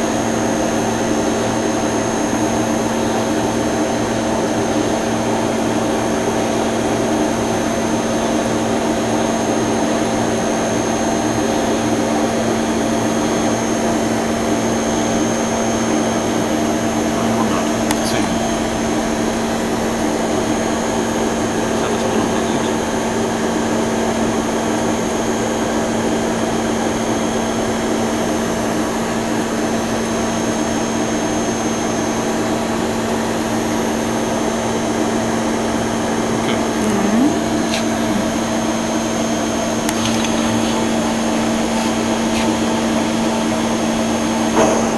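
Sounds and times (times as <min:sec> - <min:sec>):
lathe machine hum: 0:01.3 - 0:26.9, 0:37.4 - 0:44.9.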